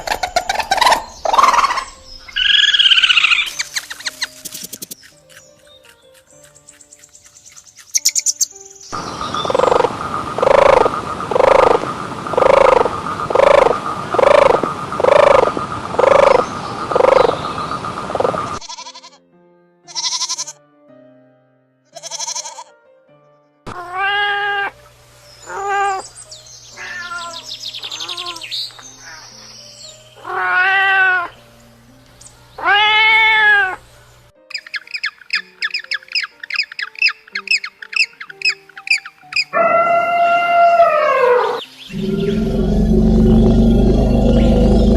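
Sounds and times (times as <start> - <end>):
animal calls: 0.0 - 8.4, 9.0 - 17.4, 25.4 - 26.1, 26.8 - 29.2, 38.0 - 44.9
background music: 0.0 - 12.6, 18.6 - 44.9
rapid chirping: 0.0 - 18.6, 41.9 - 44.9.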